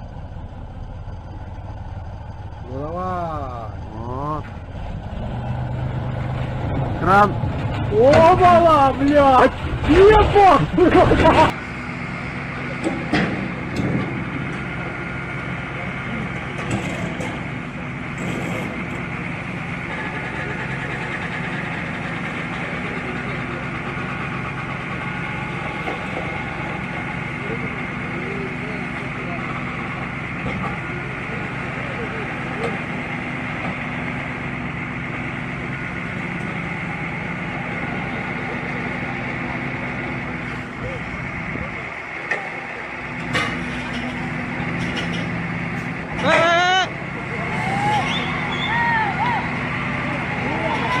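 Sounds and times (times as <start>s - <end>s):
heavy machinery engine running: 0.0s - 51.0s.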